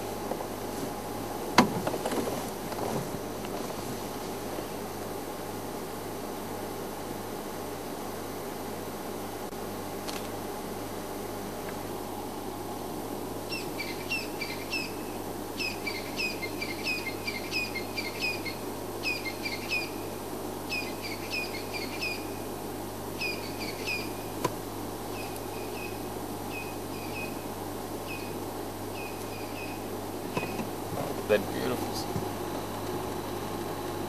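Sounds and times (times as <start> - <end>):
steady low hum: 0.0 - 34.0
birds calling squeaky notes: 13.5 - 20.0, 20.7 - 22.4, 23.2 - 24.4, 25.1 - 30.7.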